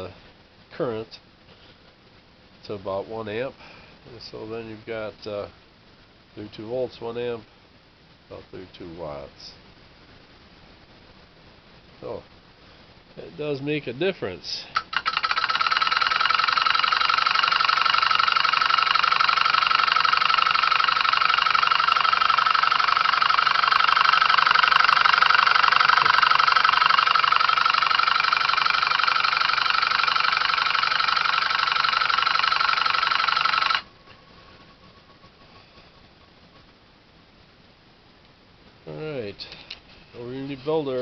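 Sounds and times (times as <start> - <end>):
electric motor mechanical buzz: 14.8 - 33.9.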